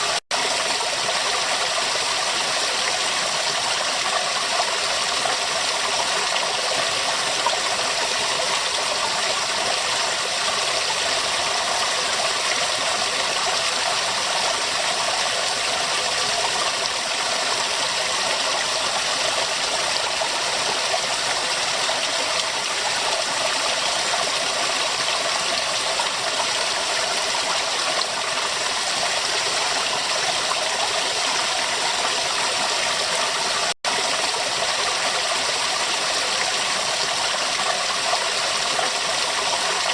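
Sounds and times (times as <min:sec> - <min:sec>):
river water running: 0:00.0 - 0:39.9.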